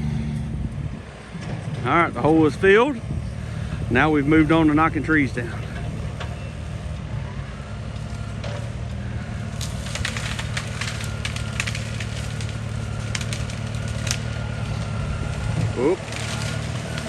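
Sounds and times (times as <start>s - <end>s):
excavator diesel engine running: 0.0s - 17.0s
wood cracking and snapping: 7.9s - 17.0s.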